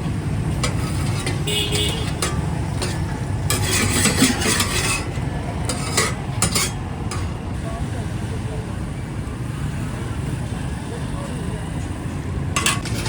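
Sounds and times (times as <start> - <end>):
street traffic rumble: 0.0 - 13.0
metal spatula clinks and scrapes: 0.5 - 7.4, 12.6 - 13.0.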